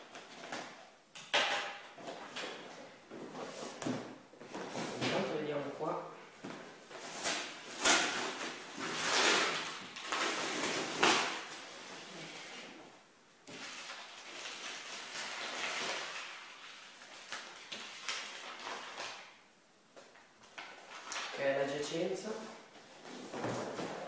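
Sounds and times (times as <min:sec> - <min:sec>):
cardboard parcel rustling: 0:06.4 - 0:12.9, 0:22.3 - 0:24.0.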